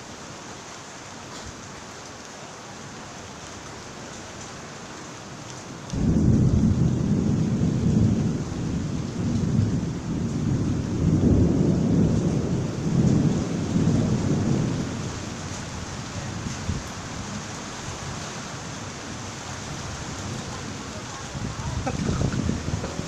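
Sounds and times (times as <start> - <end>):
steady rain: 0.0 - 23.0
rolling thunder: 5.9 - 23.0.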